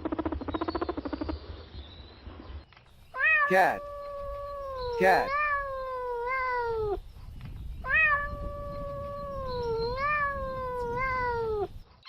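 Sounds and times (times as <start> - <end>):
cat meowing: 3.2 - 7.0, 7.9 - 11.7.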